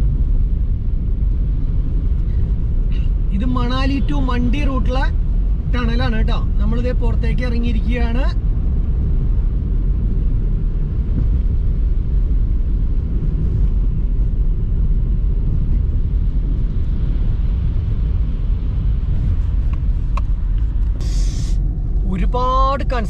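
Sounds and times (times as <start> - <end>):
car driving on road: 0.0 - 23.0
brief hiss: 21.0 - 21.6.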